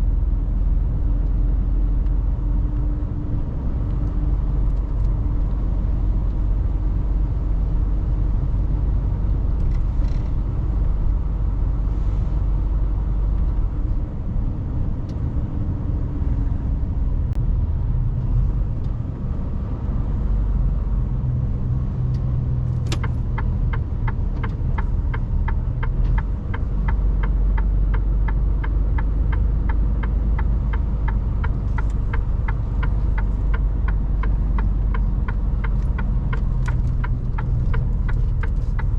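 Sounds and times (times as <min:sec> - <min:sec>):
truck diesel engine rumbling: 0:00.0 - 0:38.9
turn signal ticking: 0:21.9 - 0:38.9.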